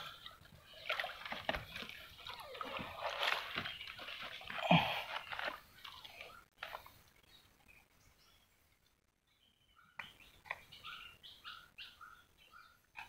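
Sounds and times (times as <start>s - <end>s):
mud and water squelching: 0.0s - 7.3s.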